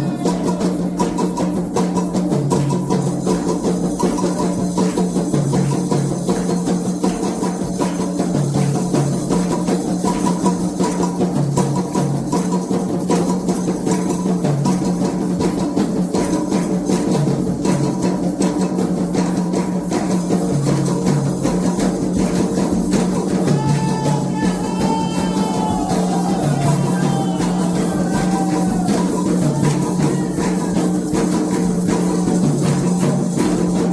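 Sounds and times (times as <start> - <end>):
fast steady drumming: 0.0 - 33.9
rattling percussion: 0.0 - 33.9
voices singing: 23.3 - 31.6.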